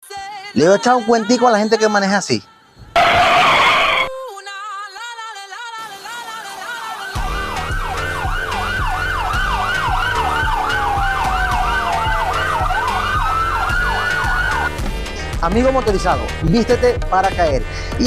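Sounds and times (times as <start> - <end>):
wailing siren: 3.0 - 4.3, 6.8 - 14.8
heavy bass beat: 7.2 - 16.3.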